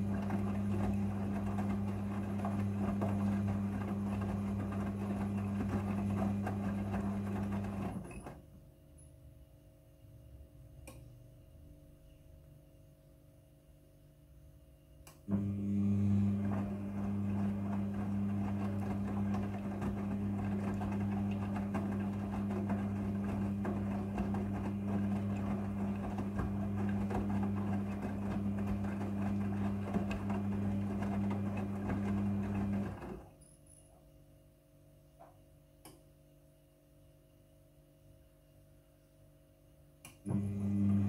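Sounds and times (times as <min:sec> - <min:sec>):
washing machine running: 0:00.0 - 0:08.4, 0:15.3 - 0:33.3, 0:40.3 - 0:41.0.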